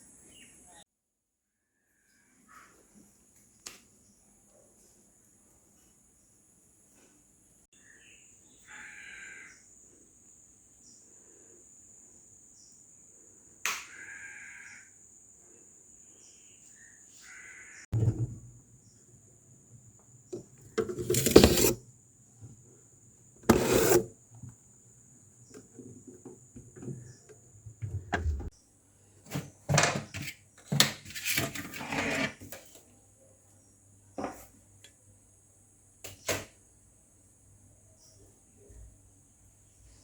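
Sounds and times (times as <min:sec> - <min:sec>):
household objects knocking and clattering: 0:17.9 - 0:18.6.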